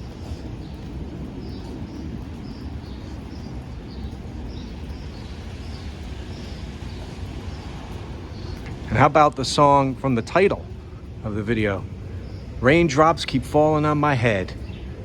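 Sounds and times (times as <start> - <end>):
small bird chirping: 0.0 - 8.8
low background noise: 0.0 - 15.0.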